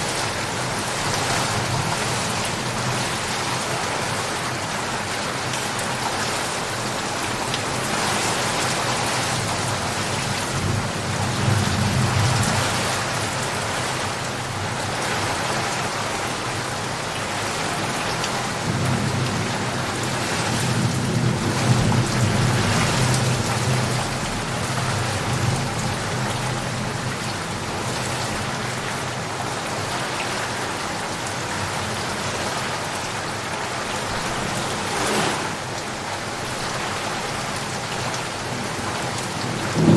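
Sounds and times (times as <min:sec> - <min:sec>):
heavy rain: 0:00.0 - 0:39.9
thunder rumbling: 0:38.7 - 0:39.9.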